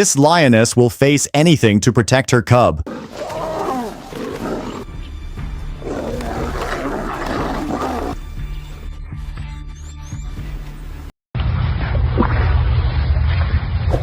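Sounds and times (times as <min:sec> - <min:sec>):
lioness roaring: 0:02.9 - 0:08.2.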